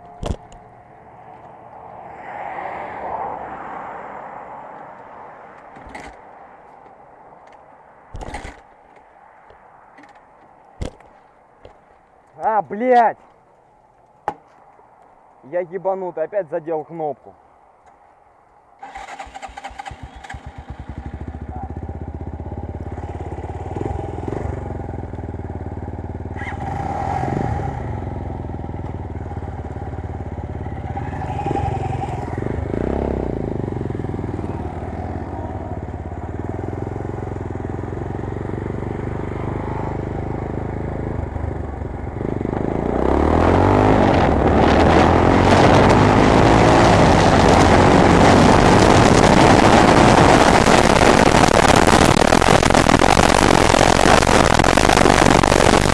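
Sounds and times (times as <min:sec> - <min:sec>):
motorcycle engine starting and revving: 0:08.1 - 0:08.7, 0:18.8 - 0:55.9
wind on microphone: 0:43.4 - 0:55.9.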